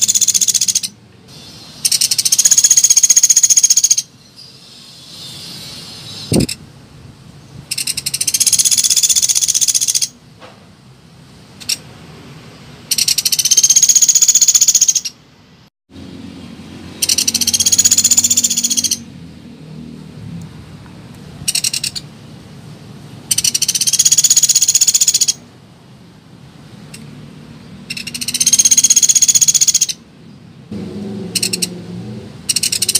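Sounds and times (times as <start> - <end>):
woodpecker rattling trills: 0.0 - 1.0, 1.8 - 4.1, 7.7 - 10.2, 12.9 - 15.2, 17.0 - 19.0, 21.5 - 22.0, 23.3 - 25.4, 27.9 - 30.0, 31.4 - 31.7, 32.5 - 32.9.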